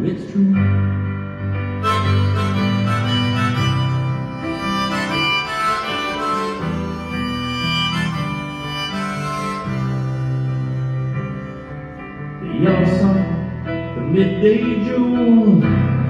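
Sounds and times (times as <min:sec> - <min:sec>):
harmonica melody: 0:01.6 - 0:14.2.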